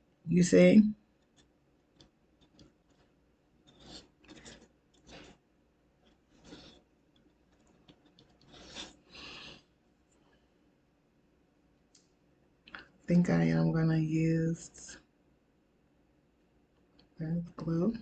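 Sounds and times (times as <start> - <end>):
wooden sticks scraping: 3.7 - 5.4, 7.6 - 9.6.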